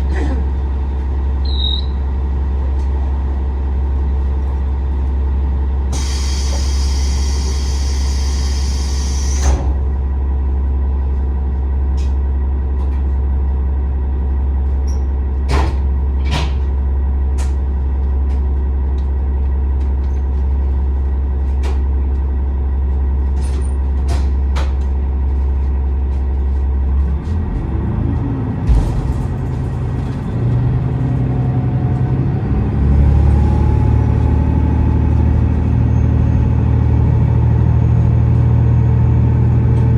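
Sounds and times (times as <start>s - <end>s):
diesel railcar engine running: 0.0s - 39.9s
compressed air hiss: 5.9s - 9.4s.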